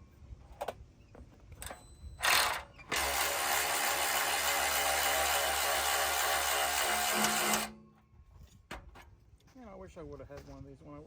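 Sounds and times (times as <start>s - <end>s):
impact wrench running: 2.2s - 7.8s.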